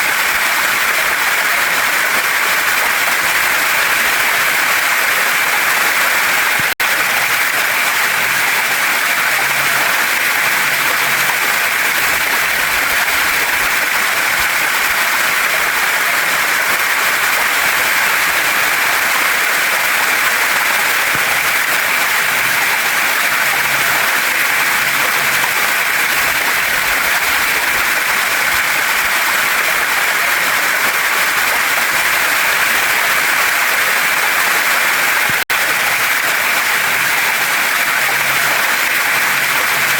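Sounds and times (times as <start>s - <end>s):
waterfall and stream running: 0.0s - 39.9s.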